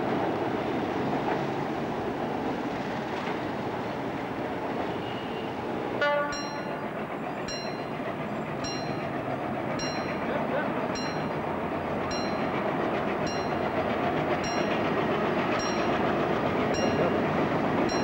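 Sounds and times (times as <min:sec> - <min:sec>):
train rumbling past on rails: 0:00.0 - 0:18.0
train horn blast: 0:04.9 - 0:06.7.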